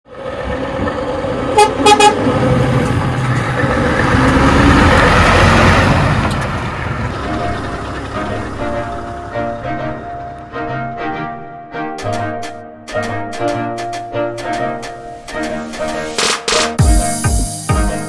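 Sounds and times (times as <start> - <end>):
truck engine and road noise: 0.0 - 17.2
truck horn toots: 1.5 - 2.6
music: 7.2 - 18.0.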